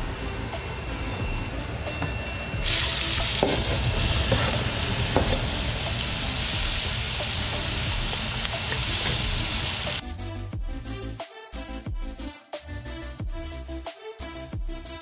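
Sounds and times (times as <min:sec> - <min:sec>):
onions sizzling in a frying pan: 0:02.6 - 0:10.0.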